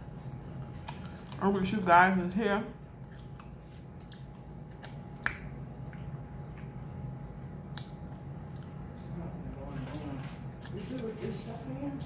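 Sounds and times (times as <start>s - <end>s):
faint steady hum: 0.0s - 12.0s
eating clicks and smacks: 0.5s - 1.5s, 3.0s - 9.6s.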